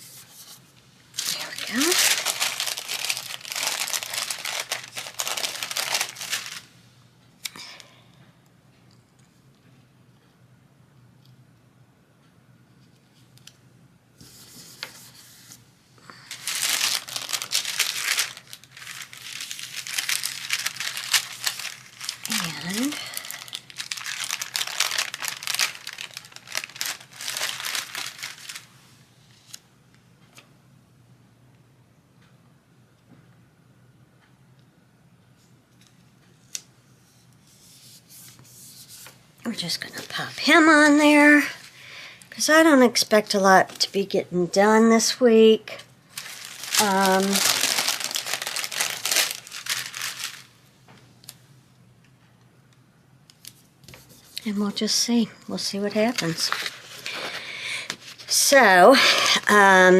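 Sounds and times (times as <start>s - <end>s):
crinkly material rustling: 1.2s - 6.7s, 16.1s - 28.8s, 45.0s - 50.6s, 55.6s - 59.9s.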